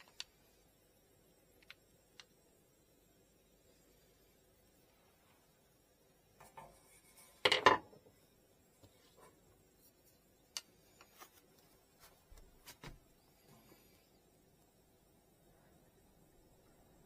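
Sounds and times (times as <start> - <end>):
hard objects knocking on a surface: 7.4 - 7.9.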